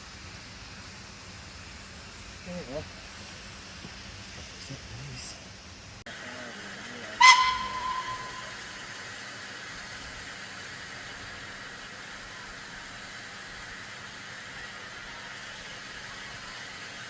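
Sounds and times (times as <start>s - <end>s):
steady steam hiss: 0.0s - 17.0s
steam whistle blast: 7.2s - 9.2s.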